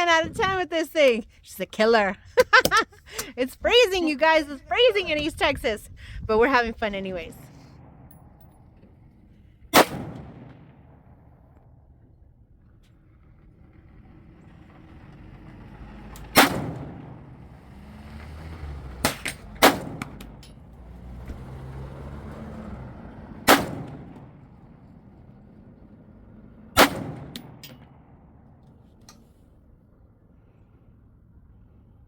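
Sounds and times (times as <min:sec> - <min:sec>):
rifle shots: 0:09.7 - 0:11.4, 0:16.3 - 0:17.2, 0:19.0 - 0:20.2, 0:23.4 - 0:24.3, 0:26.7 - 0:27.9.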